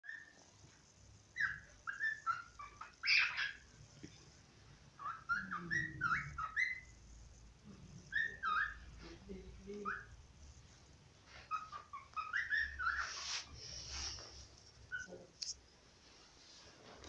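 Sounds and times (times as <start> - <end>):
cockatiel whistling: 1.4 - 3.6, 5.0 - 6.9, 8.1 - 8.8, 11.5 - 13.5.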